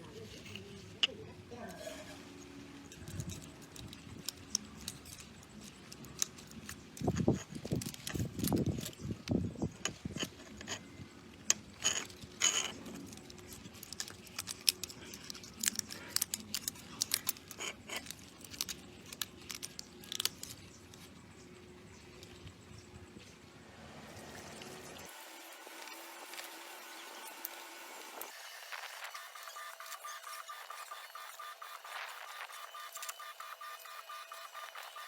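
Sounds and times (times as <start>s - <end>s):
metal tools clinking and scraping: 0.1s - 9.2s, 9.8s - 20.7s.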